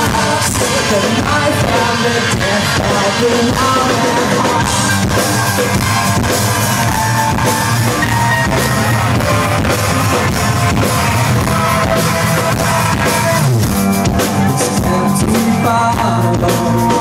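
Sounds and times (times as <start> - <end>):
electric guitars: 0.0 - 17.0
drum kit hits: 4.2 - 15.1.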